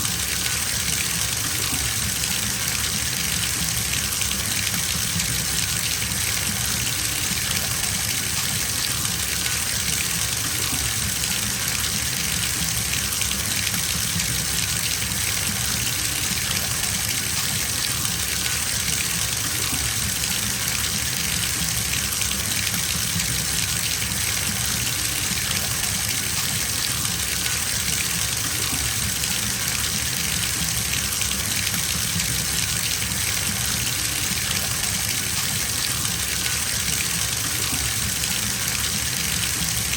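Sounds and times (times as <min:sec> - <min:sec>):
water gushing into a bathtub: 0:00.0 - 0:39.9.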